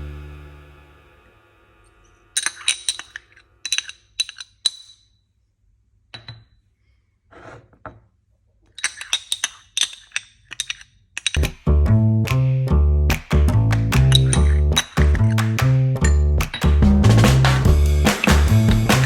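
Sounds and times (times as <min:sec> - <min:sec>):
utensils clinking against glass: 0:02.4 - 0:05.0, 0:08.8 - 0:11.5, 0:14.1 - 0:15.4, 0:18.0 - 0:19.0
soft scraping: 0:07.2 - 0:07.8.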